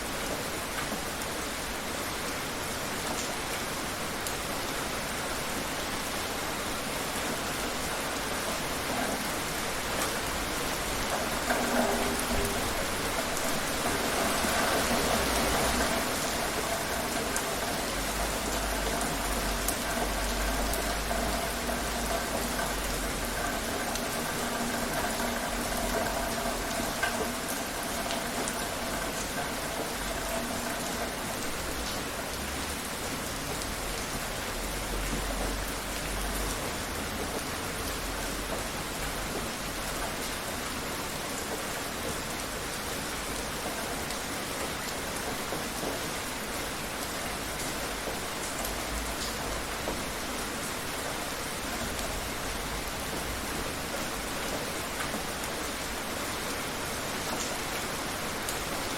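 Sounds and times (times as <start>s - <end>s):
steady rainfall: 0.0s - 58.9s
sharp raindrop ticks: 7.2s - 40.6s.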